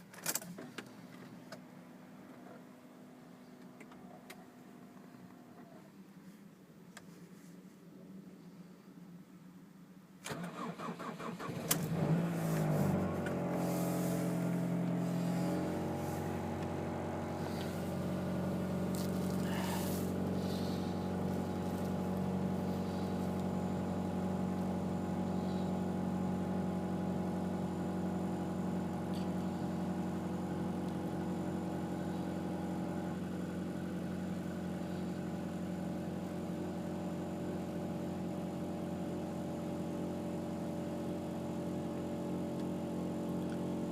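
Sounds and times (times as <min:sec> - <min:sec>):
car engine idling fast: 0:11.6 - 0:43.9.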